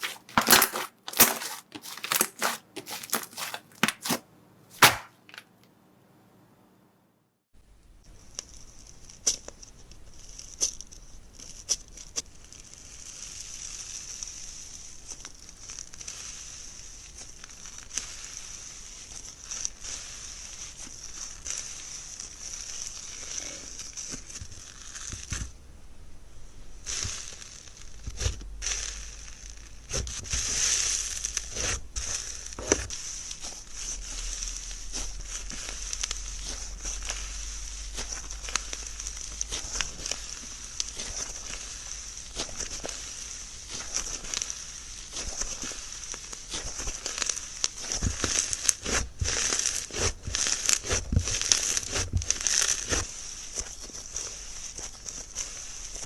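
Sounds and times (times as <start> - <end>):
slime squeezed wet crackling: 0.0 - 4.2, 4.8 - 5.4.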